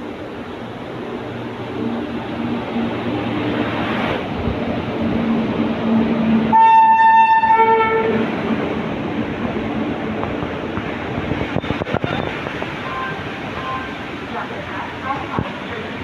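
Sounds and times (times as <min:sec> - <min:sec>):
train rumbling: 0:00.0 - 0:16.0
train horn: 0:06.5 - 0:08.2.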